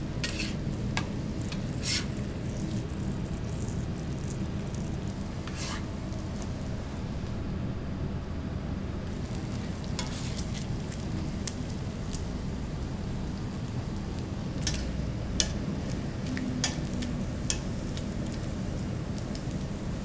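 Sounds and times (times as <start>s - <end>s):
food sizzling on a griddle: 0.2s - 6.6s, 9.1s - 20.0s.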